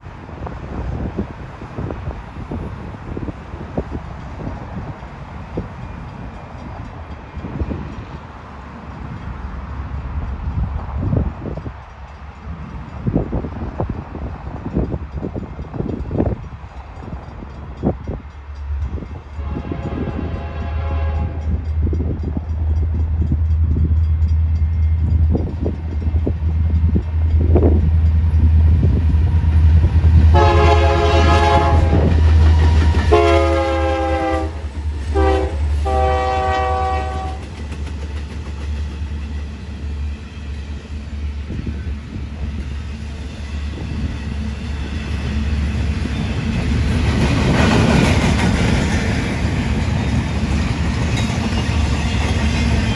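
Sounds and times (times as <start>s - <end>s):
diesel locomotive engine rumble: 0.0s - 52.9s
train horn: 19.3s - 21.6s, 30.3s - 37.5s.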